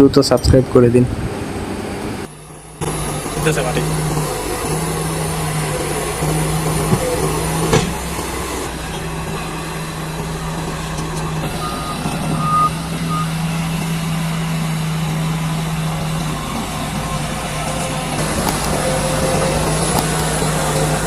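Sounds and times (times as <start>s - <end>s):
diesel engine running: 0.0s - 21.0s
reversing alarm beeping: 10.4s - 20.0s.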